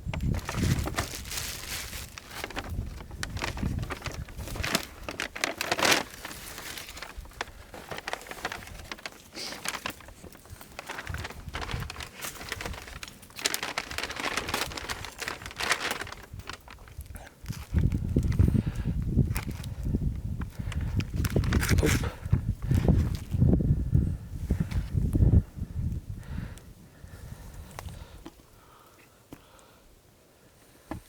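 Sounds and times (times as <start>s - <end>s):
crinkling and rustling: 0.0s - 23.5s.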